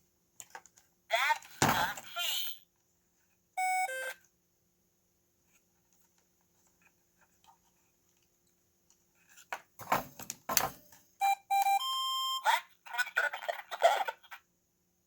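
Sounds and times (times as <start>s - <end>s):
short electronic beep: 3.6s - 4.2s.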